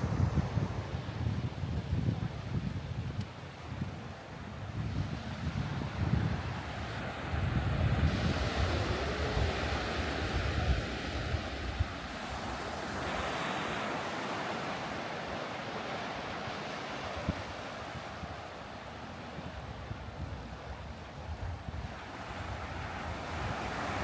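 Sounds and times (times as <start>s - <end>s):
wind gusting on microphone: 0.0s - 14.8s, 15.9s - 24.0s
sea surf breaking on beach: 5.2s - 21.1s, 21.7s - 24.0s.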